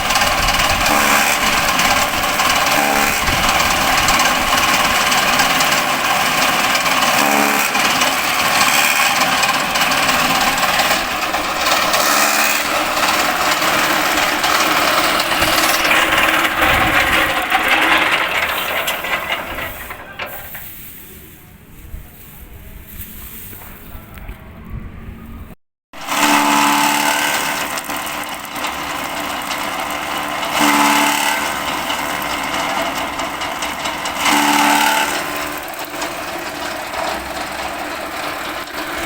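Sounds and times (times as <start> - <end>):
grass chopper machine clattering: 0.0 - 21.3, 26.0 - 39.0.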